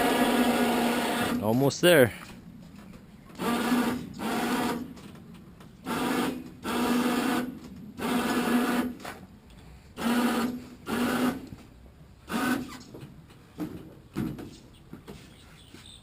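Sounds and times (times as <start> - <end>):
electric winch running: 0.0 - 1.5, 3.3 - 5.0, 5.8 - 9.2, 10.0 - 11.5.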